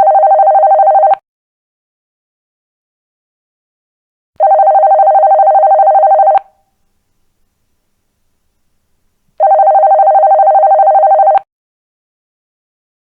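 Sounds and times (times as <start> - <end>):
telephone ringing: 0.0 - 1.2, 4.4 - 6.6, 9.4 - 11.5.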